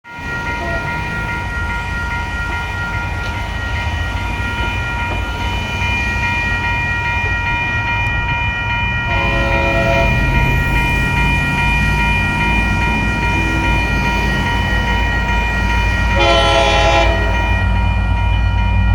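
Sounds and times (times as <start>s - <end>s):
crossing warning bell ringing: 0.0s - 18.9s
train horn blast: 9.1s - 10.4s, 16.1s - 17.6s.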